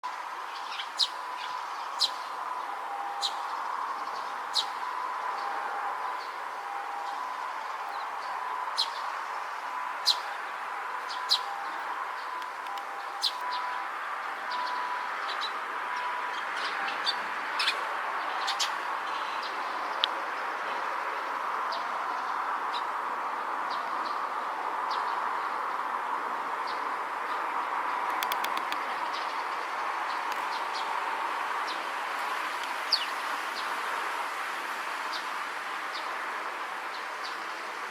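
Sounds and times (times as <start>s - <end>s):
sparrow chirping: 0.5s - 4.8s, 7.9s - 9.1s, 10.0s - 10.3s, 11.0s - 13.7s.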